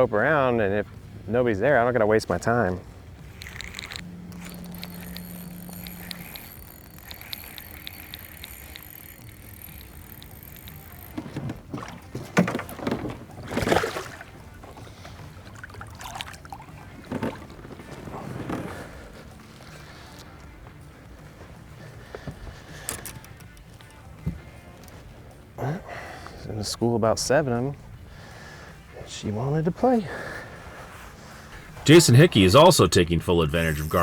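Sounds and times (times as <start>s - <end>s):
faint high whine: 3.3s - 11.3s, 31.6s - 34.0s.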